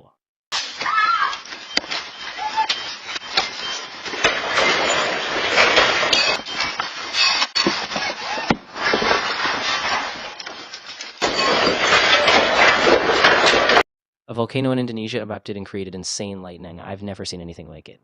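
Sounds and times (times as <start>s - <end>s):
household objects clattering: 0.6s - 13.8s.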